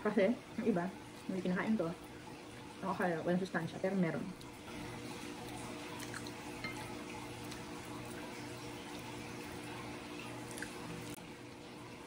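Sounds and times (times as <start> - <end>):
person chewing and sucking: 5.5 - 6.4, 10.3 - 11.0.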